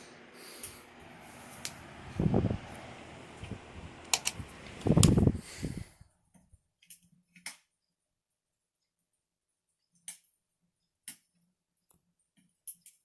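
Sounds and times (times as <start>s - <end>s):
electric table fans whooshing: 0.0s - 6.2s
sharp clicks: 4.0s - 5.2s.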